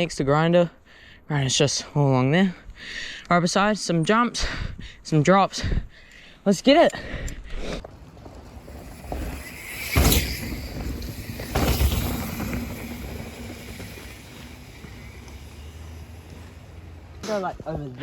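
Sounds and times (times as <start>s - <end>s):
wind rumbling on microphone: 7.3s - 18.0s
bike tyre noise on dirt: 7.6s - 18.0s
bike clatter: 8.2s - 17.5s.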